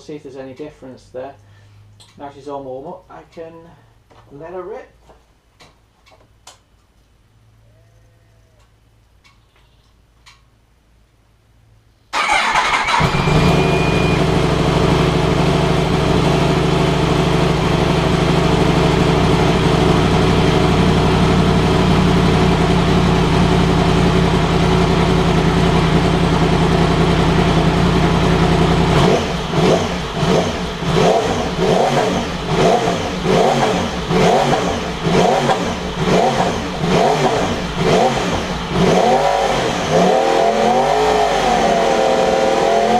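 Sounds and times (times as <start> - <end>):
motorcycle engine starting: 12.1 - 42.9
motorcycle engine revving: 12.2 - 42.9
motorcycle engine idling: 12.9 - 31.6.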